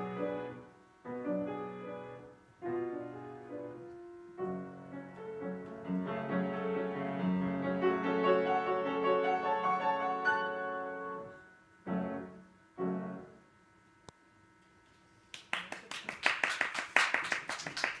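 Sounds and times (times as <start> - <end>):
piano music: 0.0 - 13.4
audience applauding: 15.3 - 18.0.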